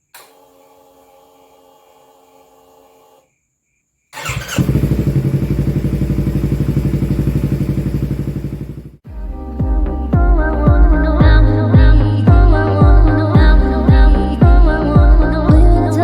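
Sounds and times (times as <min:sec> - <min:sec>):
motorcycle engine running loud: 0:04.2 - 0:09.0
music: 0:09.1 - 0:16.0.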